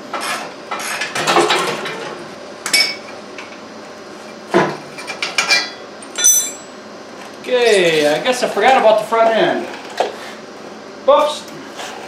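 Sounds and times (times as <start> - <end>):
metal clanking and ringing: 5.4 - 6.7.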